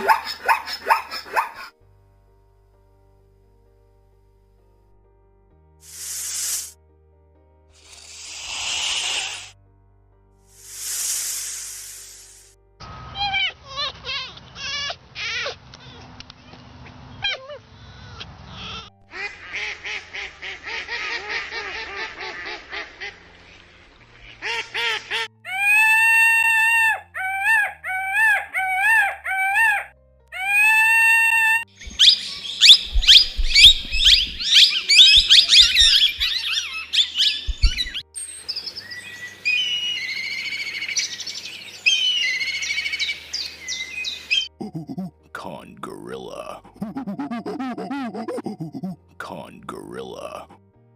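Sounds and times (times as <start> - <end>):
bird calls and chirping: 31.8 - 44.6.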